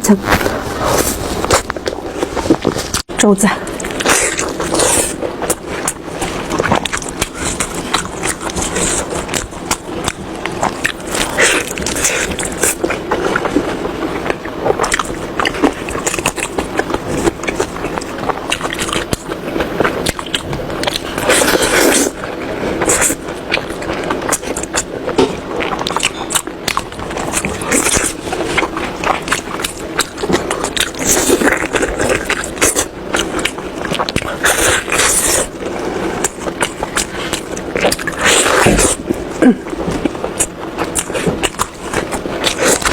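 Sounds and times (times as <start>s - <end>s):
person chewing food: 0.1s - 42.9s.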